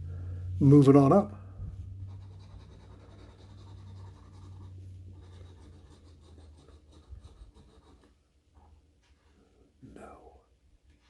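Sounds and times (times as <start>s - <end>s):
low steady hum: 0.0s - 11.0s
scratching a scratch-off ticket: 2.0s - 8.2s.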